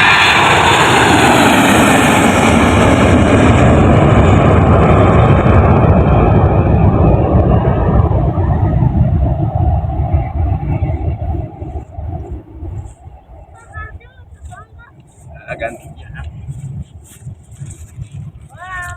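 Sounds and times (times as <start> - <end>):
aircraft engines passing: 0.0 - 18.9.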